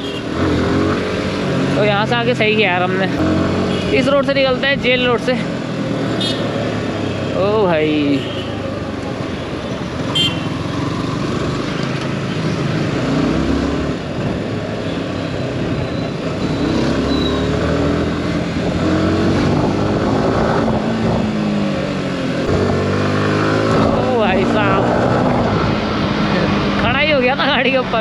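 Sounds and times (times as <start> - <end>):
motorcycle engine revving: 0.0 - 9.0, 9.9 - 28.0
wind noise: 15.4 - 28.0.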